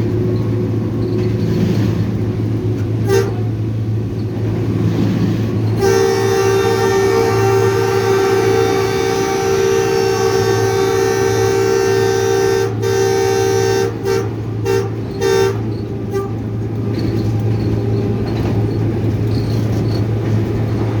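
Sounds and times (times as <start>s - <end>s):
locomotive engine drone: 0.0s - 21.0s
locomotive air horn: 3.0s - 3.8s, 5.7s - 16.7s.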